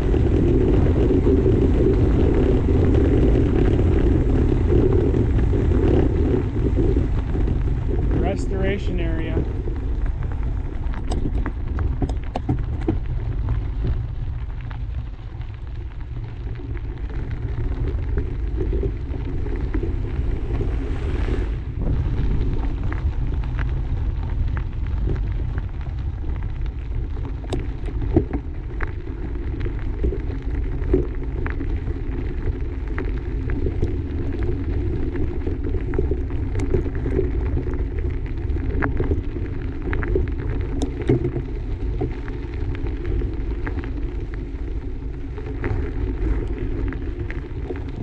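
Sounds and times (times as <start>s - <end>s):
bike tyres on dirt trail: 0.0s - 8.3s, 9.4s - 48.0s
wind rumbling on microphone: 0.0s - 48.0s
bike clicks and rattles: 10.0s - 14.4s.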